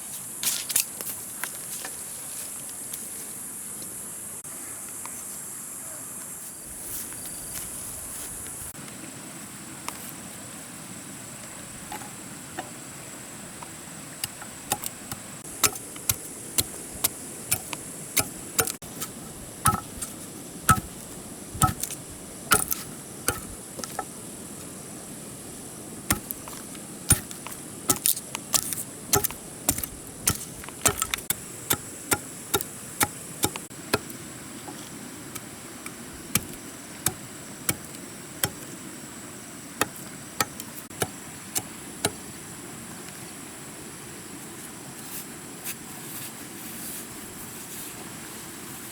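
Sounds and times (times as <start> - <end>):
sharp chopping knocks: 14.2 - 24.1, 26.1 - 34.1, 36.3 - 38.6.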